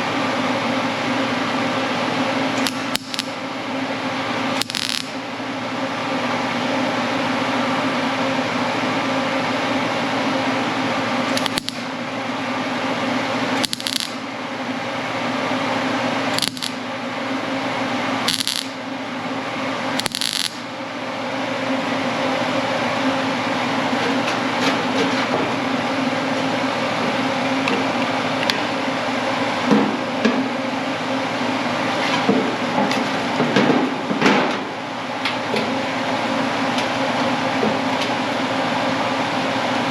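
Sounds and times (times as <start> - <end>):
welder buzzing and humming: 0.0 - 21.8
welding crackles: 2.6 - 3.4, 4.6 - 5.2, 11.3 - 11.9, 13.6 - 14.3, 16.3 - 16.9, 18.2 - 18.8, 20.0 - 20.7.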